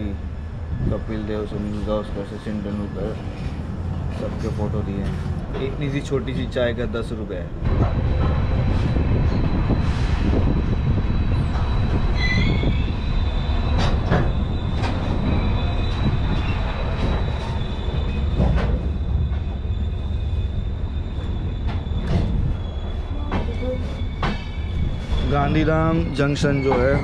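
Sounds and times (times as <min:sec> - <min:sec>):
train wheels rumbling on rails: 0:00.0 - 0:27.0
high wheel squeal: 0:08.4 - 0:27.0.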